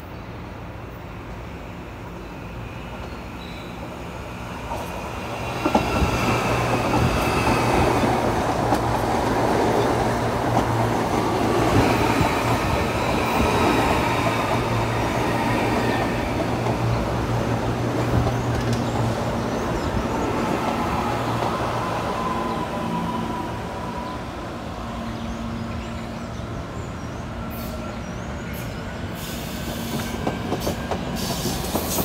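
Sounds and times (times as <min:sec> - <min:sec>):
train wheels rumbling on track: 0:00.6 - 0:32.0.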